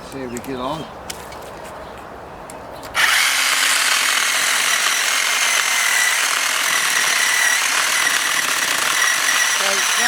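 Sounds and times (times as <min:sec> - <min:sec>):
electric chainsaw cutting log: 0:03.0 - 0:10.0.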